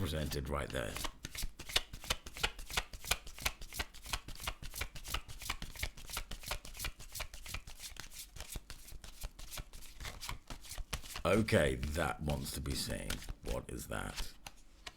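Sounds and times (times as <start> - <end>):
cards being shuffled: 0.2 - 14.9.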